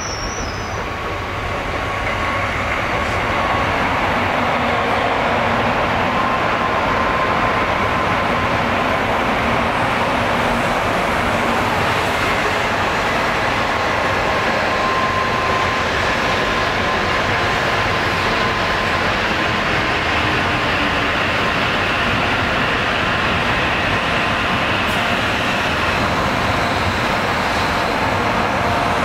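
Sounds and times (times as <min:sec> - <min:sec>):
train rushing noise: 0:00.0 - 0:29.0.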